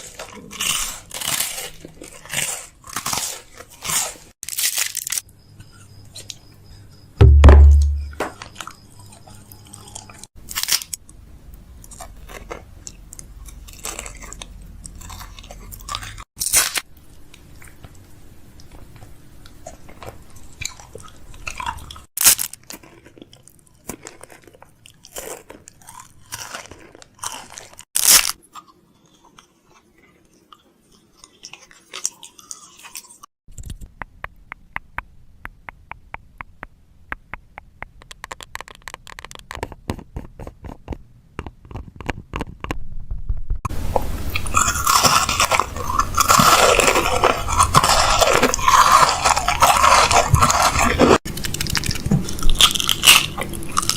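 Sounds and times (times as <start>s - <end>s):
packaging crinkling and crunching: 0.0s - 5.2s, 20.0s - 28.4s, 38.0s - 41.0s, 44.4s - 53.9s
packaging clicks and taps: 33.5s - 42.8s.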